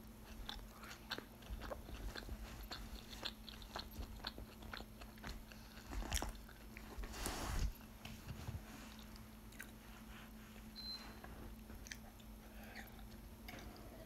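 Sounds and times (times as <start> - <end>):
chewing with wet smacks: 0.0 - 7.0, 9.0 - 9.8, 11.6 - 13.9.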